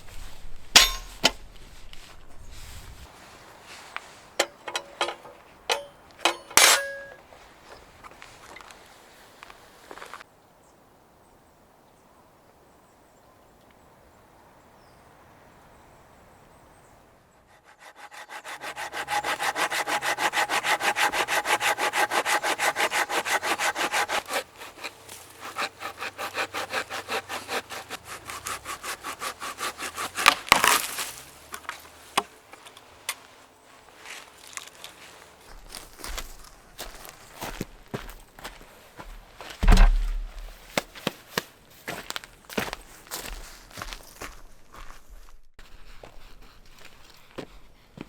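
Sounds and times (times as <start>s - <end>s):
hand saw cutting wood: 17.4s - 31.6s
wood cracking: 18.4s - 32.4s, 39.0s - 40.9s.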